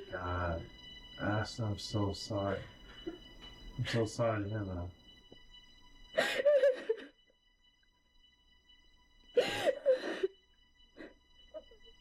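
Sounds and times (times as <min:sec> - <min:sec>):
woman sobbing: 0:06.1 - 0:07.3, 0:09.4 - 0:12.0.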